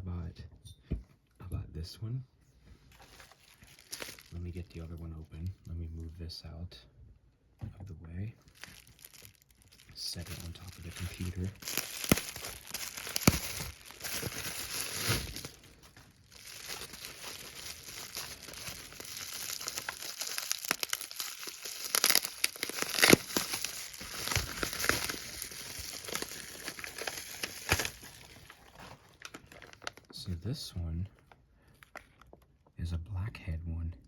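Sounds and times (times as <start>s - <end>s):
plastic packaging crinkling: 2.9s - 5.0s, 8.4s - 30.4s.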